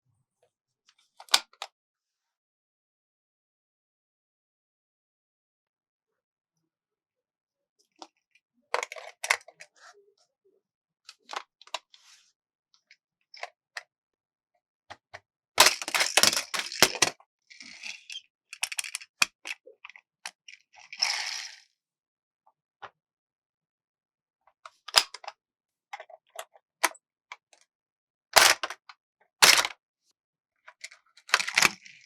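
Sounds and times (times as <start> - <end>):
packaging crinkling: 15.6 - 17.1.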